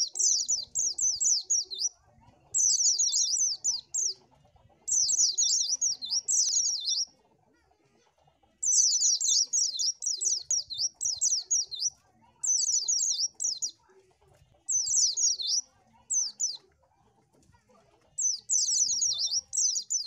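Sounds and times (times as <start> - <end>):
white-eye bird chirping: 0.0 - 1.9, 2.6 - 4.2, 4.9 - 7.1, 8.6 - 13.7, 14.7 - 16.6, 18.2 - 20.0.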